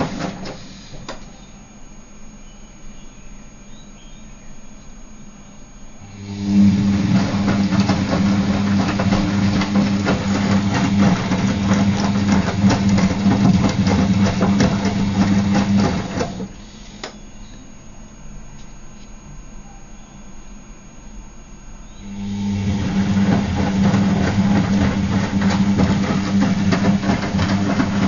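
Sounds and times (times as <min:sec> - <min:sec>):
washing machine running: 0:00.0 - 0:01.8, 0:05.9 - 0:18.4, 0:21.9 - 0:28.0.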